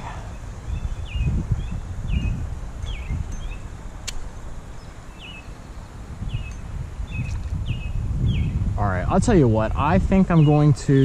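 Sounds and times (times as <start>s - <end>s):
songbird chirping: 0.0s - 11.0s
wind rumbling on microphone: 0.0s - 11.0s
sharp click: 4.0s - 4.3s.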